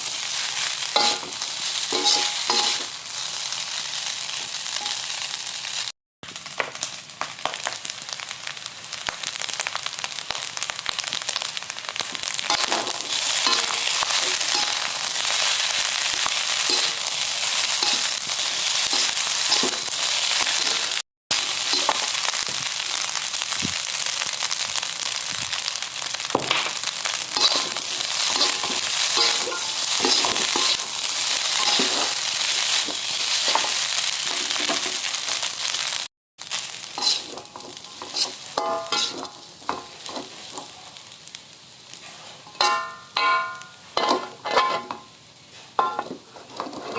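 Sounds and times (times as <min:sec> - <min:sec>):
rice sizzling in a pan: 0:00.0 - 0:46.9
spatula scraping and clicking: 0:37.0 - 0:39.8.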